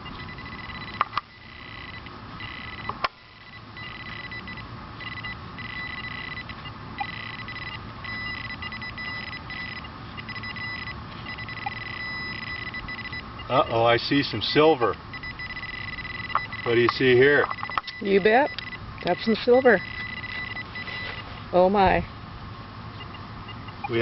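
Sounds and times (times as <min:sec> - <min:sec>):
metal detector electronic beeps: 0:00.0 - 0:13.8, 0:14.6 - 0:21.3, 0:23.0 - 0:24.0.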